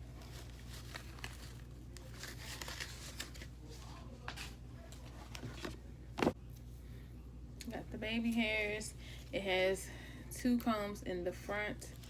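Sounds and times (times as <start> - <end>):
packaging rustling and crinkling: 0.1 - 3.5.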